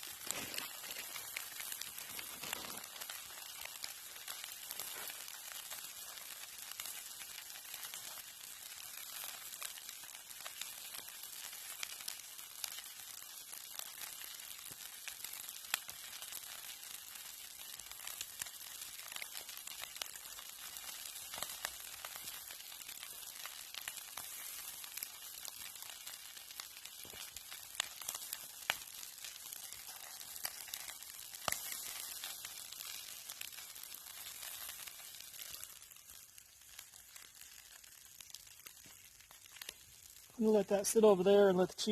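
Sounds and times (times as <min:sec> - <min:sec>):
food sizzling in a frying pan: 0:00.0 - 0:41.9
sharp pops and crackles: 0:00.0 - 0:41.9.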